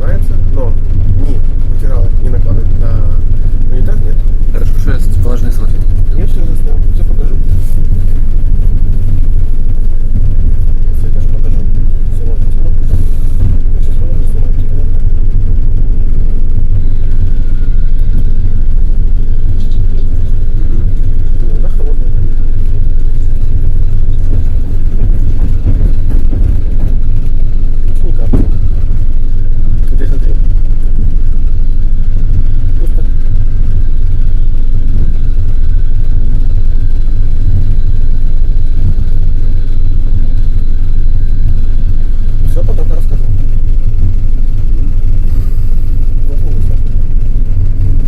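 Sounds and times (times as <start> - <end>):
faint thin whine: 0.0 - 48.0
train carriage rumbling on rails: 24.1 - 30.4.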